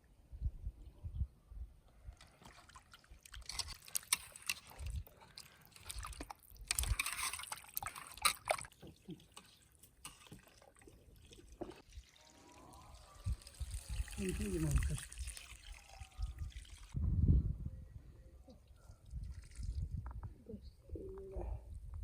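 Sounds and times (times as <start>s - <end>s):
water sloshing and dripping: 2.0s - 17.0s.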